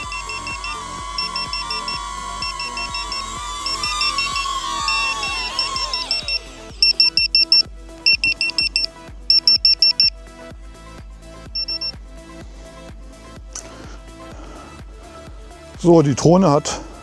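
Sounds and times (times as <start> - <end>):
rapid high electronic beeping: 0.0 - 10.1, 11.6 - 11.9
background music: 0.0 - 17.0.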